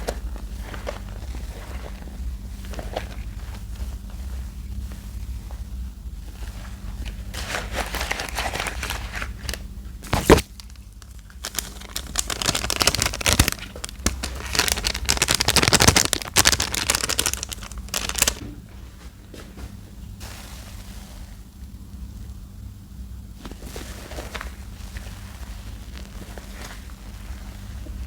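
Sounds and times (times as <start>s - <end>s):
soap paste wet crackling: 0.0s - 18.4s, 23.3s - 28.0s.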